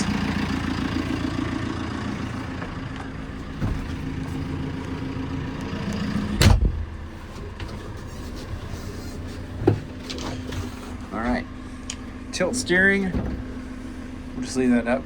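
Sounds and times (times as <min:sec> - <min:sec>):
diesel engine idling: 0:00.0 - 0:15.0
loud thump: 0:03.6 - 0:04.0, 0:06.4 - 0:07.0, 0:13.1 - 0:13.6.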